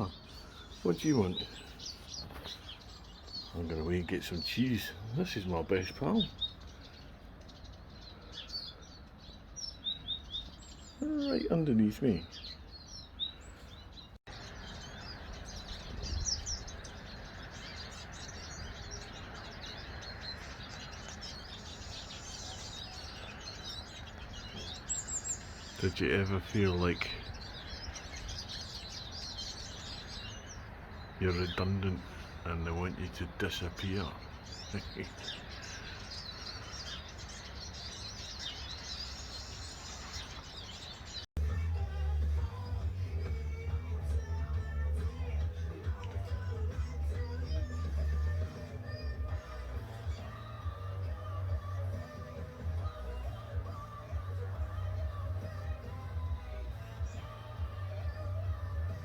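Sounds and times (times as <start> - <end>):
songbirds chirping and twittering: 0.0 - 59.0
music with heavy bass: 41.4 - 59.0.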